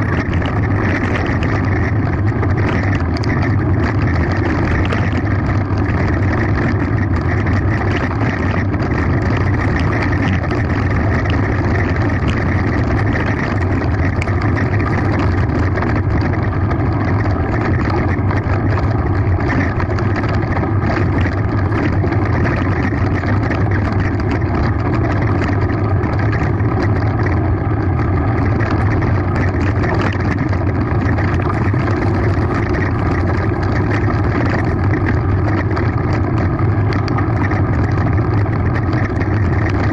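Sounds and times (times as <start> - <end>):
bike rattling over gravel: 0.0 - 39.9
wind and tyre noise: 0.0 - 39.9.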